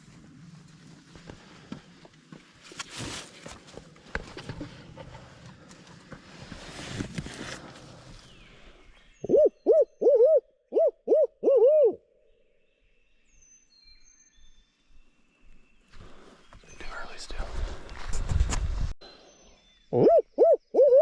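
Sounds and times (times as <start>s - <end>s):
owl hooting: 9.2s - 12.1s, 19.9s - 21.0s.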